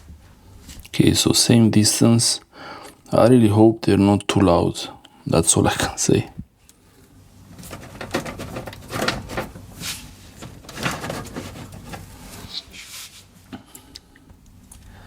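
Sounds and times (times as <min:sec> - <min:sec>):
handling knocks clicks and rustles: 0:07.5 - 0:12.4.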